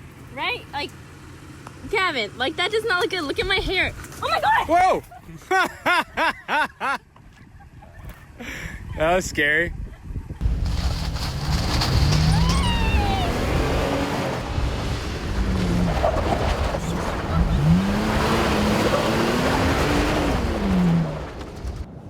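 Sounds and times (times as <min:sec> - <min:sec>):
truck engine revving: 0:10.4 - 0:21.9
tyre noise: 0:10.4 - 0:21.9.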